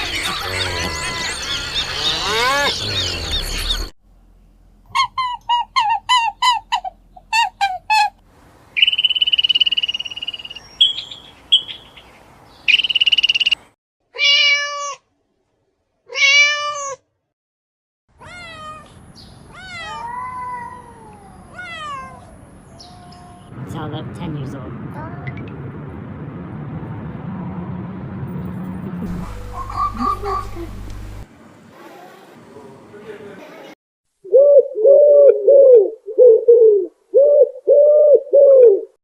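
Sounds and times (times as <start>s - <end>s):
short high chirping calls: 8.8s - 13.6s
drawn-out meows: 14.2s - 15.0s, 16.1s - 17.0s, 18.2s - 23.5s.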